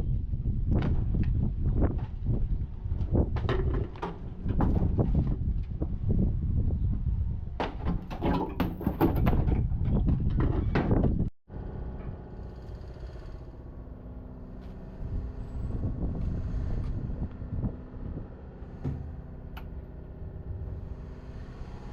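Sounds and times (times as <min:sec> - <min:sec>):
metallic clatter of knocks: 0:07.6 - 0:11.0
machine drone: 0:11.5 - 0:21.9.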